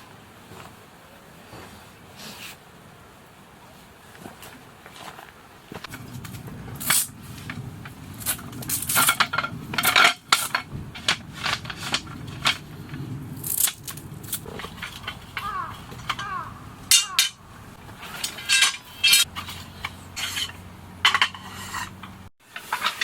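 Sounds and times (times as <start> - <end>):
low rushing background: 5.9 - 22.3
metal cookware clinking and scraping: 6.0 - 23.0.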